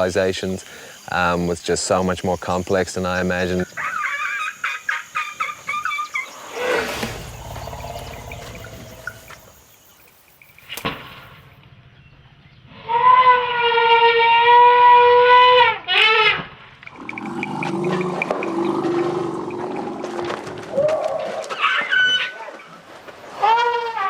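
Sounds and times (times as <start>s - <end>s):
elephant calls: 3.7s - 9.5s.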